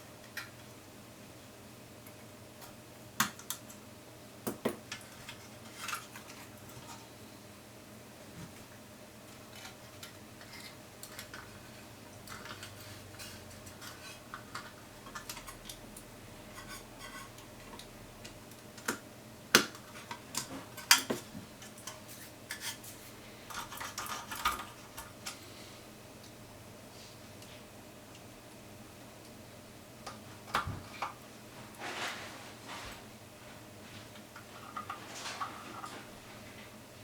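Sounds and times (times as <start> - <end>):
rustling: 31.5 - 36.8.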